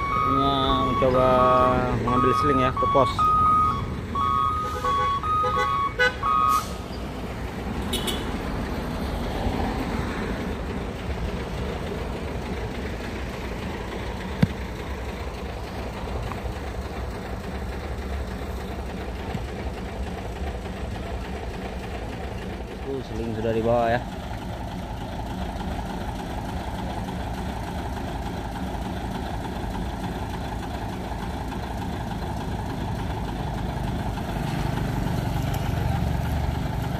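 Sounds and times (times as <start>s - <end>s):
truck reversing alarm beeping: 0.0s - 7.1s
truck engines rumbling: 0.0s - 36.9s.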